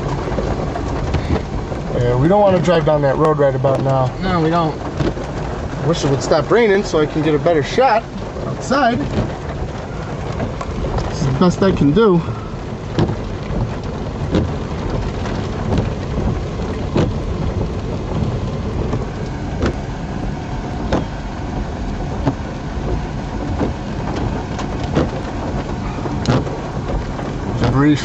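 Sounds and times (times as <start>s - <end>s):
heavy rain on car roof: 0.0s - 28.0s.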